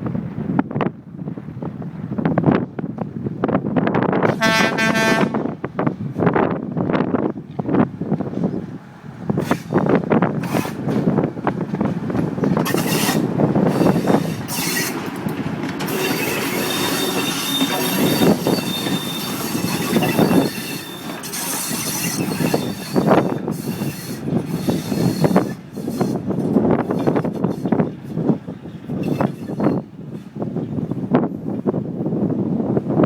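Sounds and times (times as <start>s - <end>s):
railcar wheels rumbling: 0.0s - 33.0s
high wheel squeal: 12.6s - 15.1s, 15.9s - 29.9s.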